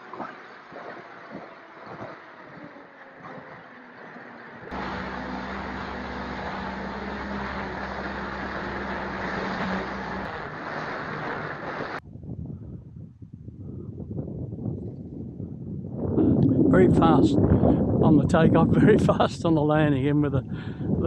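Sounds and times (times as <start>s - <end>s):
model plane electric motor: 2.5s - 10.3s
rush of air: 15.8s - 18.0s.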